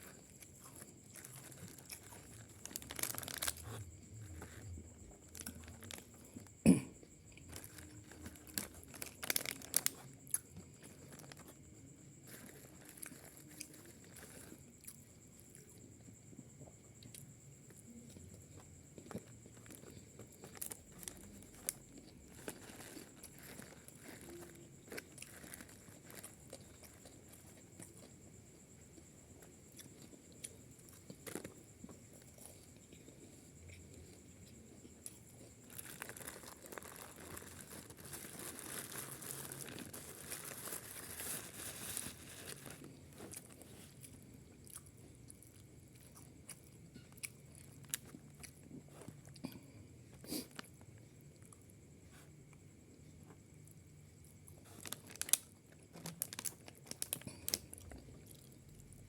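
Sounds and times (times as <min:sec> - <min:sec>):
person chewing and crunching food: 0:00.0 - 0:59.0
rustling: 0:31.2 - 0:44.1.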